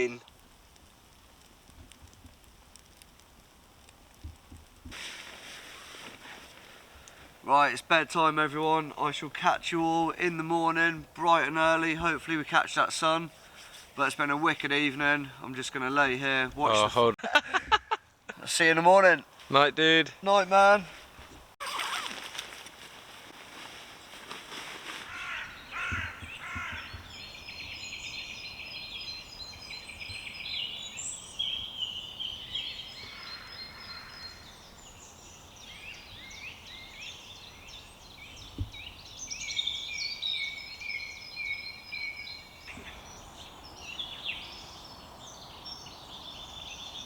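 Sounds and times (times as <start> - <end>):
songbirds singing: 25.0 - 47.0.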